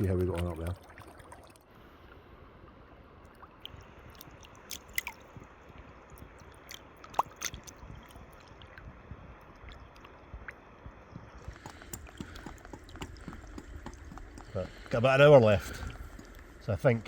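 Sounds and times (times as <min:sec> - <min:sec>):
footsteps squelching in waders: 0:11.4 - 0:17.0.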